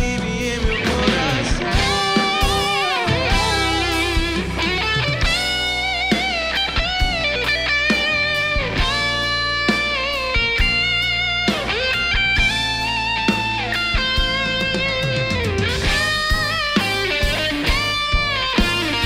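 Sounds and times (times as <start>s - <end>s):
bass guitar: 0.0s - 19.0s
electric guitar lead: 0.0s - 19.0s
steady drum beat: 0.0s - 19.0s.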